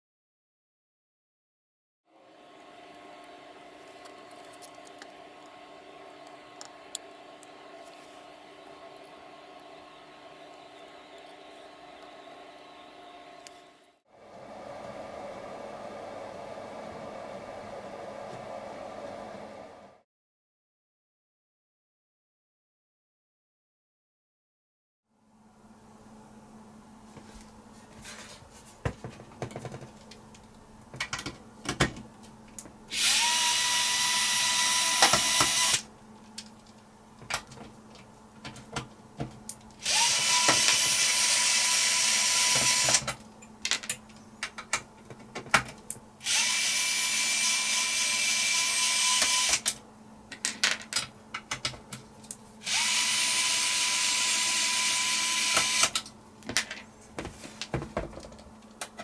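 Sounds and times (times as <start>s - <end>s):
electric drill motor whine: 2.1s - 19.9s, 32.9s - 35.9s, 39.8s - 43.1s, 46.2s - 49.8s, 52.6s - 56.0s
clicks and knocks of handled parts: 42.9s - 46.0s, 49.6s - 52.4s.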